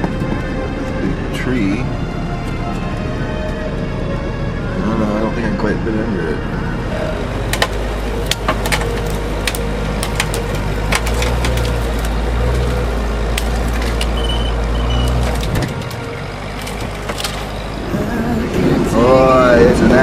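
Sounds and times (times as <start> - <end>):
vehicle engine drone: 0.0 - 20.0
branches snapping and cracking: 7.5 - 17.8.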